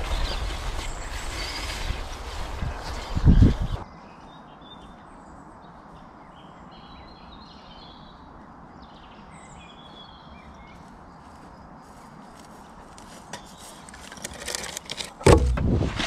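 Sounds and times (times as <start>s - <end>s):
birds singing and chirping: 0.0s - 11.5s.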